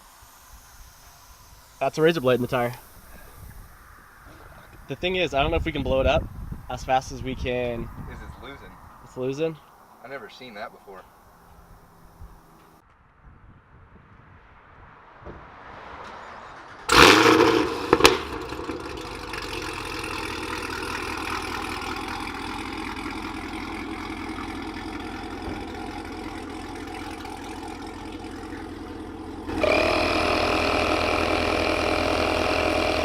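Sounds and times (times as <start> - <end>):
mechanical whine: 0.0 - 3.8, 16.9 - 33.0
car engine starting and idling: 15.9 - 33.0.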